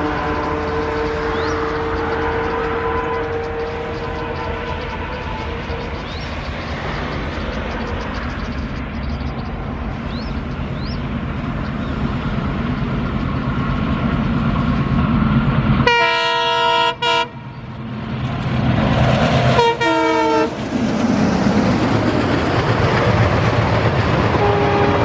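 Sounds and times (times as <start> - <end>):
locomotive horn: 0.0 - 6.0, 15.8 - 17.5, 19.5 - 20.6, 24.4 - 25.0
diesel locomotive engine rumble: 0.0 - 25.0.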